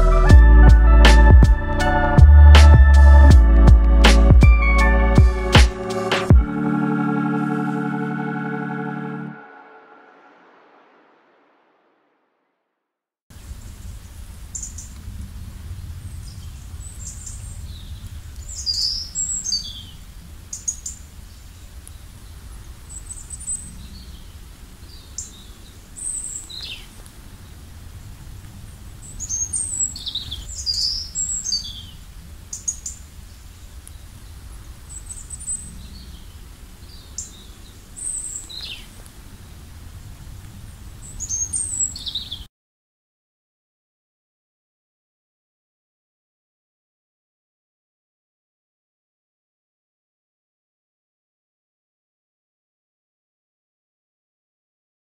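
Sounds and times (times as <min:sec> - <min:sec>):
low rumble: 0:00.0 - 0:05.6
songbirds chirping and calling: 0:16.2 - 0:27.6, 0:29.0 - 0:39.6, 0:41.0 - 0:42.5.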